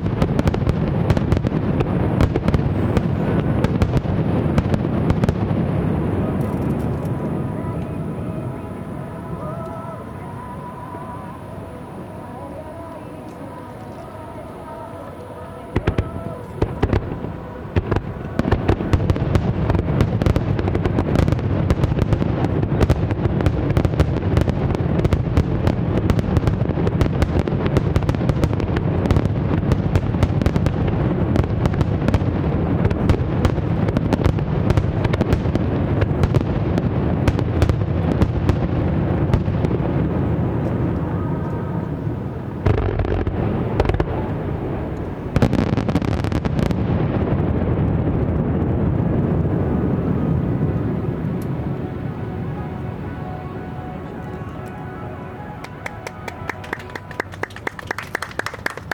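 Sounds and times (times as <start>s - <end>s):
firework booms: 0.0s - 9.6s, 15.8s - 53.4s
firework crackling: 0.0s - 58.9s.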